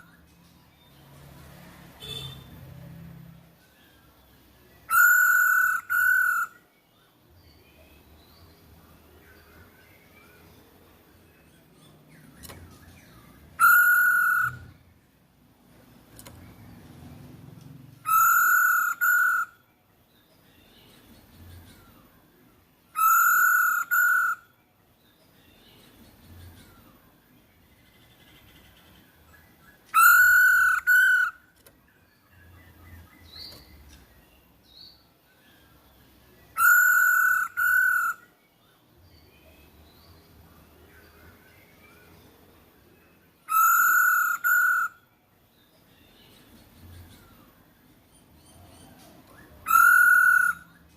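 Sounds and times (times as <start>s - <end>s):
faint bird chirps: 2.0s - 50.9s
bird whistling: 4.9s - 6.6s, 13.6s - 14.8s, 18.0s - 19.6s, 23.0s - 24.5s, 29.9s - 31.4s, 36.6s - 38.3s, 43.5s - 45.0s, 49.4s - 50.8s.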